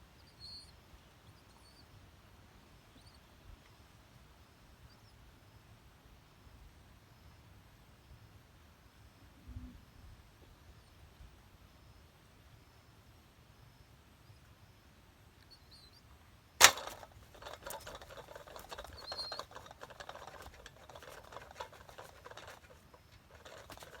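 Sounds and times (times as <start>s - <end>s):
faint high bird chirps: 0.0s - 2.0s, 2.6s - 3.9s, 15.4s - 16.1s, 17.4s - 24.0s
bird scratching and fluttering: 16.6s - 24.0s
bird trap snapping shut: 16.6s - 24.0s.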